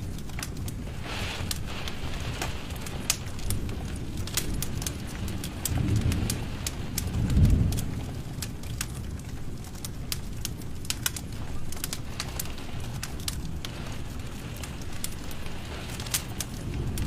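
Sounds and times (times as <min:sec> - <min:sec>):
low rumble of flame: 0:00.0 - 0:17.0
wood fire crackling and popping: 0:00.0 - 0:17.0.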